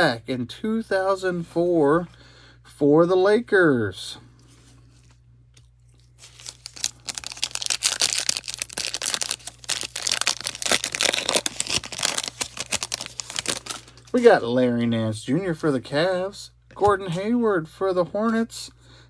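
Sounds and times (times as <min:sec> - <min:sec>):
plastic wrapper tearing and crinkling: 0:06.0 - 0:14.2.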